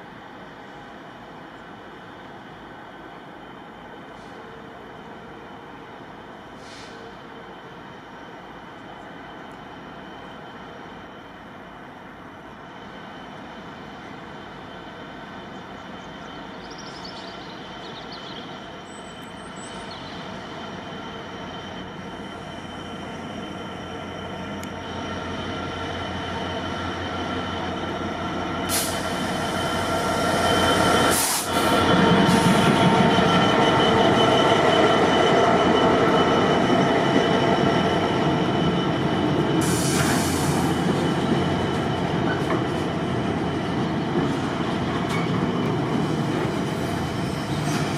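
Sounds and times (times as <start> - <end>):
train rumbling on track: 0.0 - 47.9.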